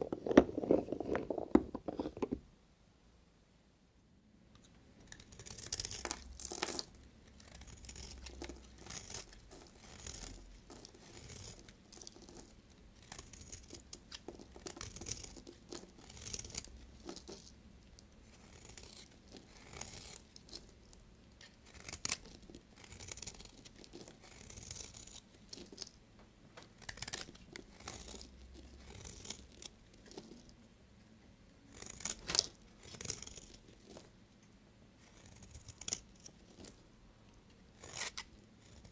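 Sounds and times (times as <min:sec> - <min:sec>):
knife cutting soap: 0:04.6 - 0:26.0, 0:26.7 - 0:30.5, 0:31.7 - 0:34.1, 0:35.0 - 0:36.8, 0:37.7 - 0:38.9.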